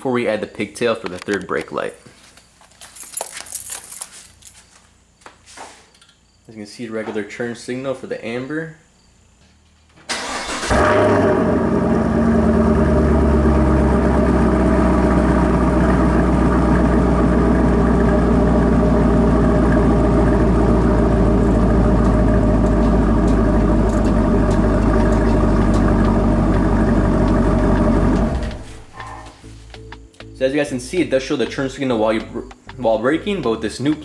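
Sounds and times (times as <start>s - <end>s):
car engine idling: 10.1s - 29.4s.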